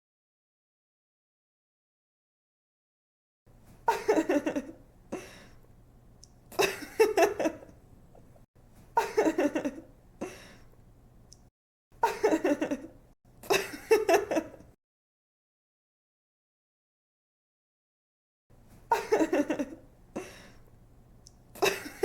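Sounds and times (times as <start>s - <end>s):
young woman giggling: 3.9s - 5.3s, 6.5s - 7.7s, 9.0s - 9.9s, 12.0s - 14.7s, 18.9s - 20.4s, 21.6s - 22.0s.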